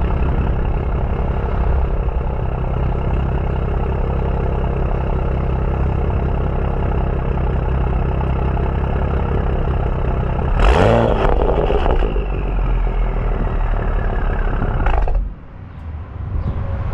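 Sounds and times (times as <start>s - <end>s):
turbocharged car engine running: 0.0s - 15.4s
engine revving: 10.3s - 15.4s.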